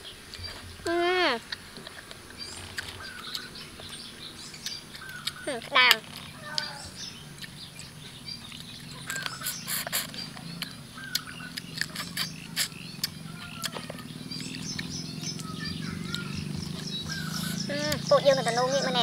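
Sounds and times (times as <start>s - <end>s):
birds chirping: 0.0s - 19.0s
steady low hum: 0.0s - 19.0s
chewing clicks and smacks: 1.5s - 4.0s, 4.6s - 6.7s, 7.4s - 17.3s.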